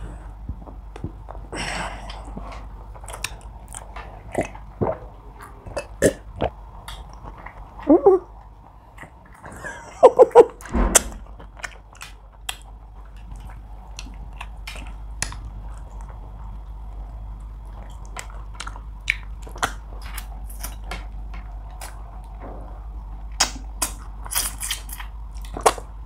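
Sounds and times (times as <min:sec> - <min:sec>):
faint low hum: 0:00.0 - 0:26.0
person chewing food: 0:00.1 - 0:09.6, 0:11.3 - 0:22.4, 0:23.2 - 0:26.0
loud knock: 0:10.6 - 0:11.3.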